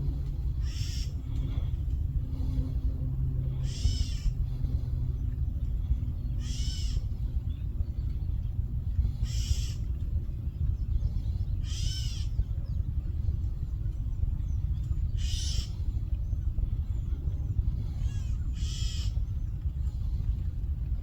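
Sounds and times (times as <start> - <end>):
steady low rumble: 0.0 - 21.0
bird squawking in alarm: 0.6 - 1.2, 3.5 - 4.4, 6.4 - 7.1, 9.2 - 9.8, 11.6 - 12.4, 15.2 - 15.8, 17.9 - 19.2.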